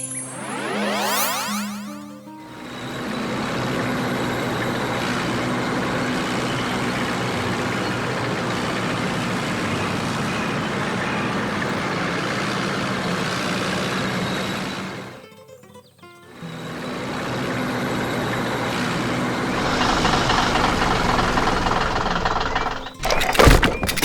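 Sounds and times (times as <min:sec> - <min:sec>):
truck engine rumbling: 0:02.5 - 0:15.2, 0:16.6 - 0:24.0.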